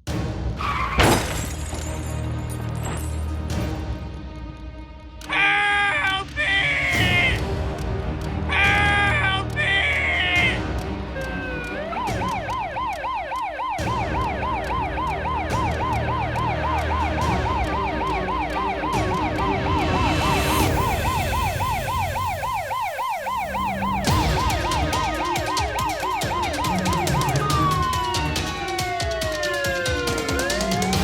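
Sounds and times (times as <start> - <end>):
electronic siren wailing: 11.2 - 31.0
second siren tone gliding down: 11.3 - 31.0.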